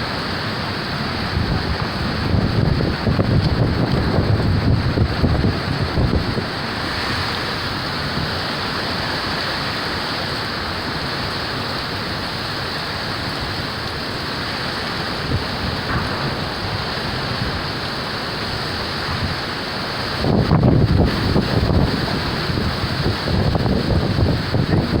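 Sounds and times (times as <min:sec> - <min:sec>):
heavy rain: 0:00.0 - 0:25.0.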